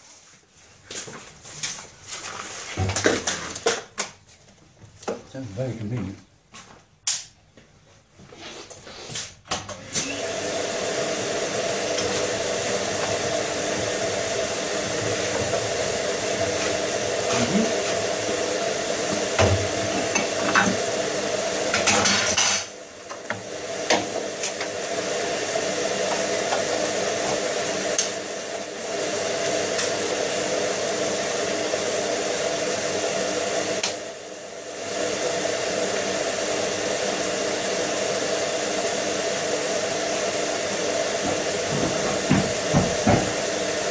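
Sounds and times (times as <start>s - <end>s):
dust extractor: 8.3s - 43.9s
belt and disc sander running: 9.8s - 22.5s, 23.2s - 43.9s.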